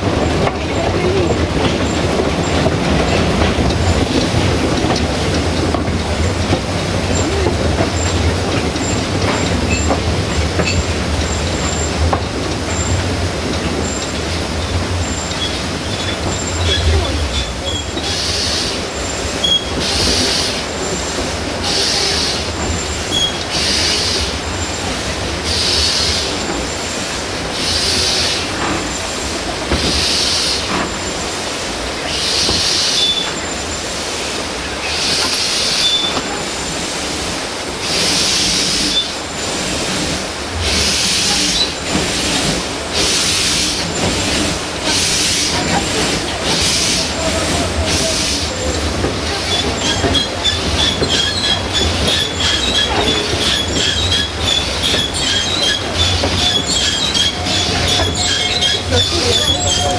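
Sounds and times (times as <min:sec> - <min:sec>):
steam train running: 0:00.0 - 0:59.9
high wheel squeals: 0:15.0 - 0:24.7, 0:32.1 - 0:33.7, 0:34.8 - 0:36.3, 0:46.3 - 0:59.9.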